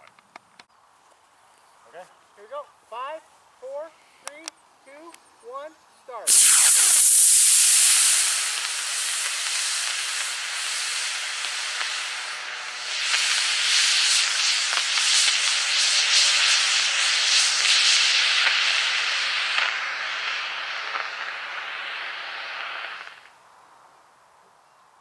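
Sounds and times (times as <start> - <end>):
rocket motor hissing: 6.3 - 23.4.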